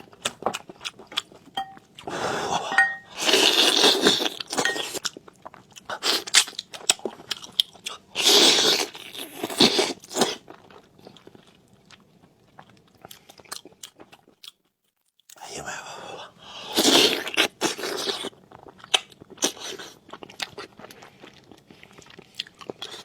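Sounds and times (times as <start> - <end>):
wet chewing and smacking: 3.0 - 14.6, 16.9 - 23.0.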